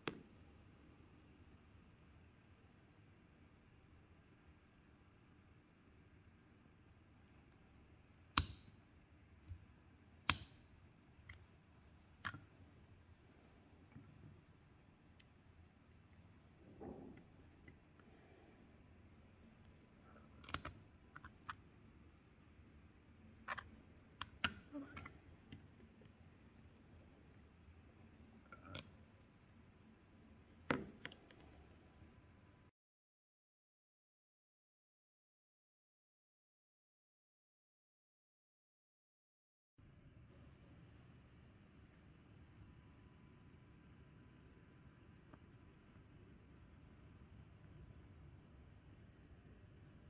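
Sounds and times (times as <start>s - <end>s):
hand tool clicking on metal: 8.4s - 8.8s, 10.3s - 10.7s.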